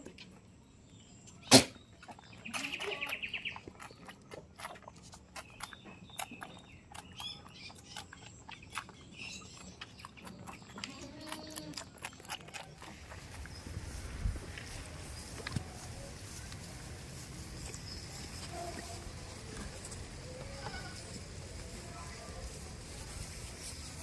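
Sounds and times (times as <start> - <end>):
goat bleating: 10.7 - 11.9, 20.3 - 21.1.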